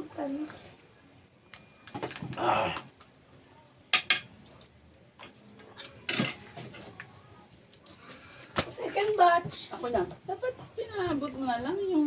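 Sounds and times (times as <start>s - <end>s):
cutlery and dishes clinking: 3.9s - 4.3s, 5.8s - 6.9s.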